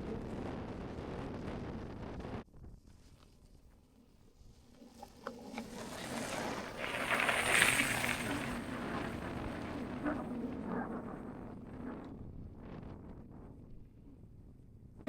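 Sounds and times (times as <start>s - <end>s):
wind on microphone: 0.0s - 3.2s, 4.4s - 15.0s
bicycle rolling: 2.9s - 14.3s.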